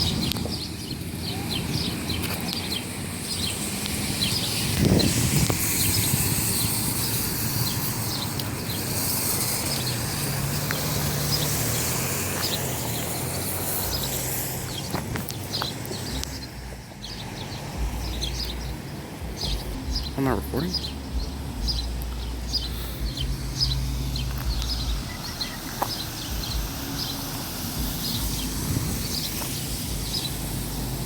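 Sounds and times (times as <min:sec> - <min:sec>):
outdoor noise haze: 0:00.0 - 0:31.0
small birds chirping: 0:00.0 - 0:31.0
low rumble: 0:16.2 - 0:31.0.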